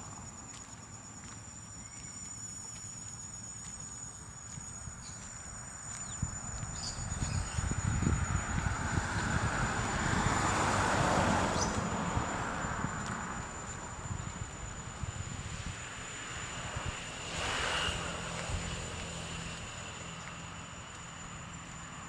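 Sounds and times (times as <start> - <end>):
high whine of insects: 0.0 - 22.0
passing vehicle engine: 7.0 - 22.0.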